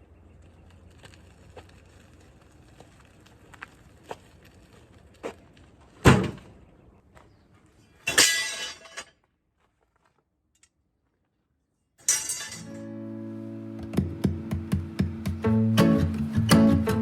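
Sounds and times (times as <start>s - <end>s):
loud thud: 6.0s - 6.5s.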